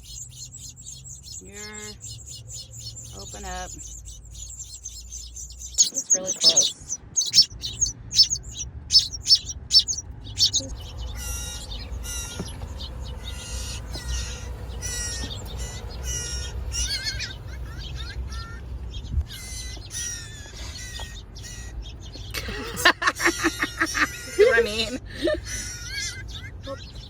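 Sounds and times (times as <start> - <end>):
low rumble: 0.0 - 19.6
baby birds chirping: 0.0 - 27.0.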